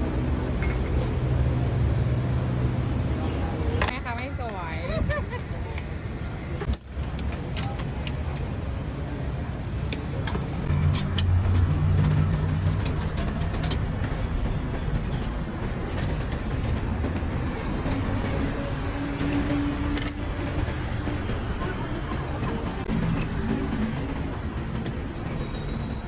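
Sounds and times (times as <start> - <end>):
vehicle engine: 0.0 - 4.0, 10.1 - 26.0
road traffic rumble: 0.0 - 26.0.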